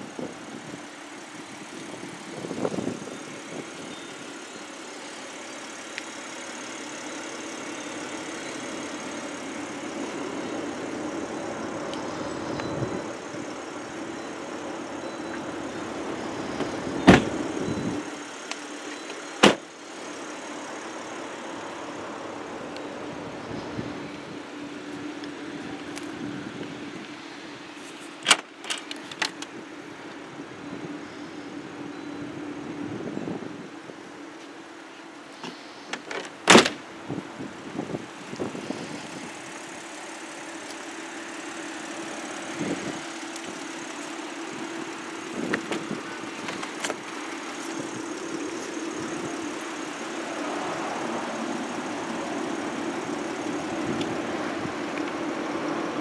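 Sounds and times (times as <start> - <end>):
car engine idling: 0.0 - 56.0
car door slamming: 16.6 - 17.5, 19.4 - 19.7, 36.0 - 36.8
trunk latch clicks: 35.9 - 36.8.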